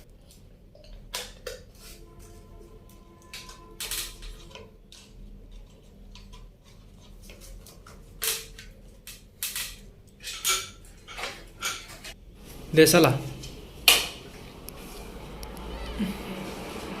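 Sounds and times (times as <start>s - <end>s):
metal fan parts clinking: 8.2s - 12.2s.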